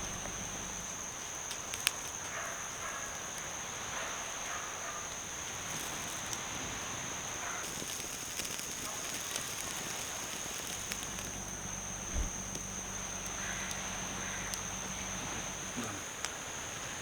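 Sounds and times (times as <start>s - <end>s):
low hum: 0.0s - 1.2s, 10.8s - 15.8s
campfire crackling: 0.0s - 17.0s
insect drone: 0.0s - 17.0s
low thump: 12.1s - 12.4s.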